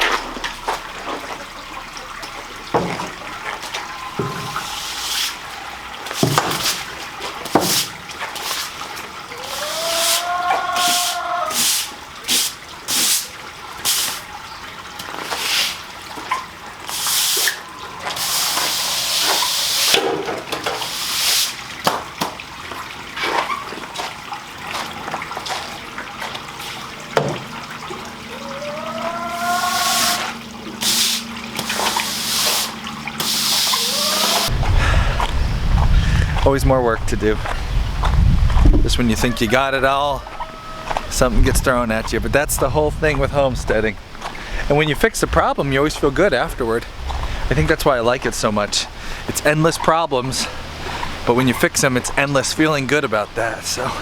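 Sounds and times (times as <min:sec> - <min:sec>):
floodwater running and splashing: 0:00.0 - 0:54.0
whine-like call: 0:28.2 - 0:34.6.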